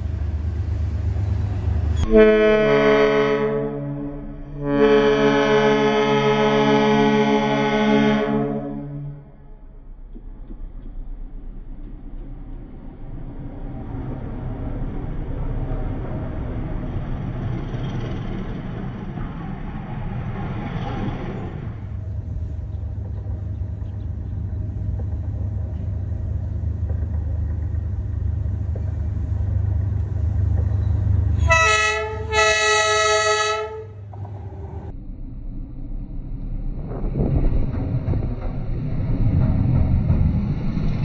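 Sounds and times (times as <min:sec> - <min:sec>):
train wheels rumbling on rails: 0:00.0 - 0:02.2, 0:09.5 - 0:35.0, 0:36.0 - 0:41.0
diesel locomotive engine rumble: 0:00.0 - 0:41.0
train horn blasts: 0:02.0 - 0:09.6, 0:31.3 - 0:34.2.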